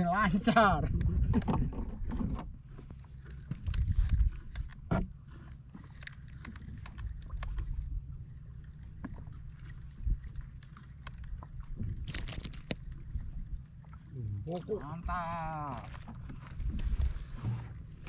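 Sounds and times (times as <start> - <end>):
fishing line clicks and rustles: 1.0 - 18.0
steady low rumble: 6.0 - 18.0.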